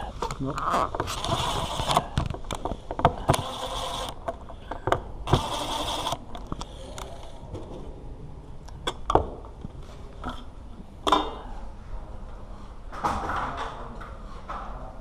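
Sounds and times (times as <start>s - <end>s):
sharp clicks and knocks: 0.2s - 7.7s
mechanical scraping and whirring: 0.8s - 2.6s, 3.2s - 4.2s, 5.3s - 7.4s.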